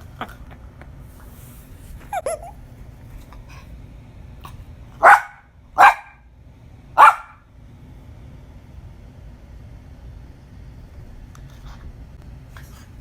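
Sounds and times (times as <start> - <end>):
small dog barking: 5.0 - 6.2, 7.0 - 7.4.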